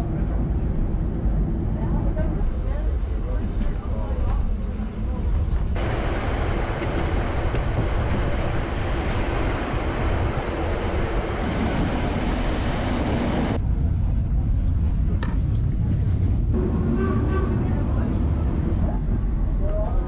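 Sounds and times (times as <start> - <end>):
air rushing at open window: 0.0 - 17.0
train wheels rumbling on rails: 0.0 - 20.0.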